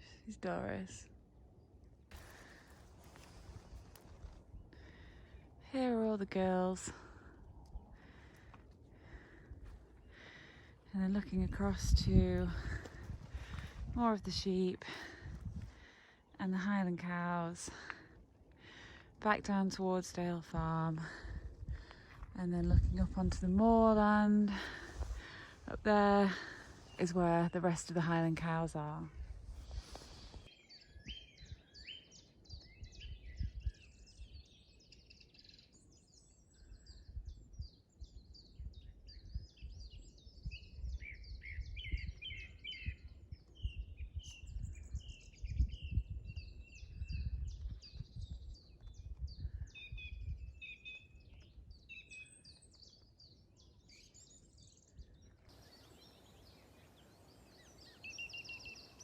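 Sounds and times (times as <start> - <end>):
wind rumbling on microphone: 0.0 - 16.1, 18.6 - 34.8, 35.8 - 52.0
birds singing and chirping: 29.7 - 59.0.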